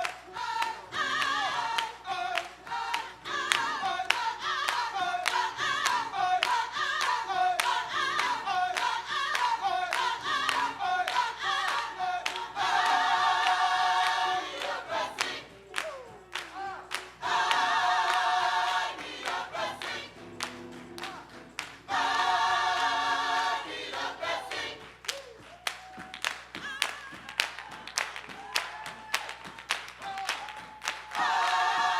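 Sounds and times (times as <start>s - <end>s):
hand clapping: 0.0s - 18.3s, 18.9s - 21.9s, 24.5s - 31.6s
gospel choir singing: 0.0s - 25.4s, 30.5s - 31.9s.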